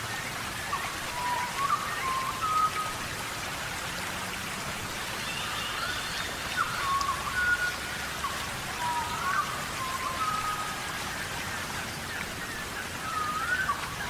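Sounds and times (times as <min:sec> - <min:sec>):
rain falling: 0:00.0 - 0:14.0
short whistled calls: 0:05.4 - 0:11.0, 0:13.0 - 0:14.0.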